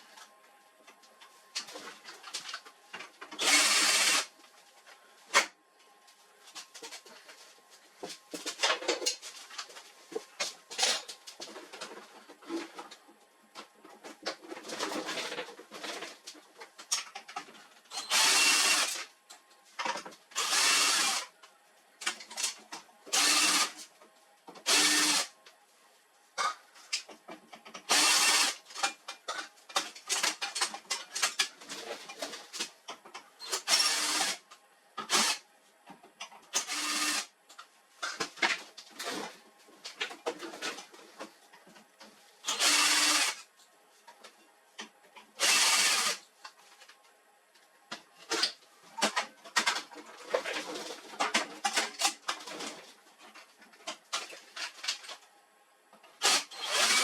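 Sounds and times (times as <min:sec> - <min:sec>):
electric screwdriver driving screws: 0:03.4 - 0:04.3, 0:18.0 - 0:19.0, 0:20.4 - 0:21.3, 0:23.2 - 0:23.8, 0:24.7 - 0:25.3, 0:27.9 - 0:28.6, 0:33.6 - 0:34.4, 0:35.0 - 0:35.4, 0:36.6 - 0:37.3, 0:42.5 - 0:43.4, 0:45.4 - 0:46.2, 0:56.2 - 0:57.0
screws and plastic panels clattering: 0:26.4 - 0:32.7, 0:48.2 - 0:55.2.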